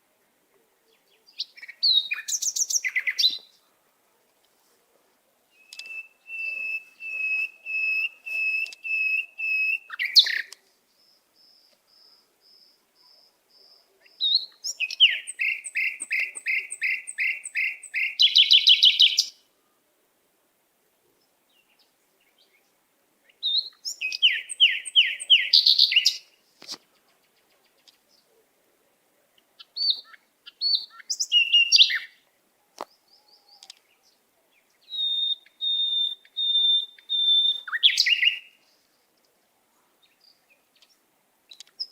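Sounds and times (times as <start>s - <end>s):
pet birds chirping: 0.9s - 3.6s, 5.6s - 19.3s, 23.4s - 26.2s, 29.4s - 32.1s, 32.8s - 38.5s.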